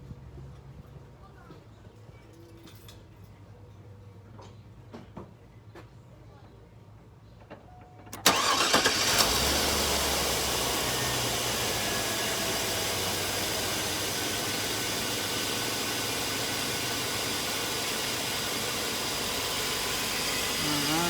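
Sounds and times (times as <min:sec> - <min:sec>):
starter cranking: 0:08.2 - 0:09.8
engine idling: 0:08.2 - 0:21.0.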